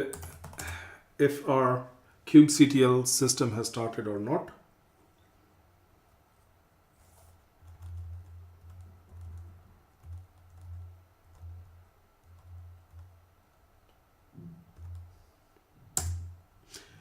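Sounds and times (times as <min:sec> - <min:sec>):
faint keyboard typing: 0:00.0 - 0:00.9, 0:07.0 - 0:14.0, 0:14.6 - 0:15.2.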